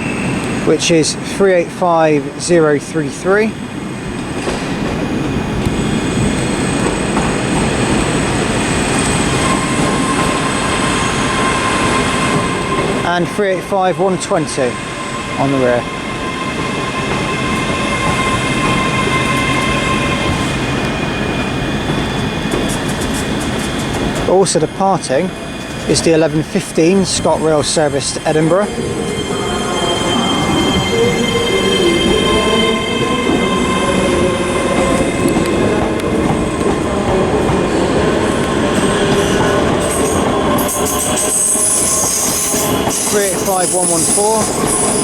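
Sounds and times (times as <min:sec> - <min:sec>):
train rumble: 0:00.0 - 0:45.0.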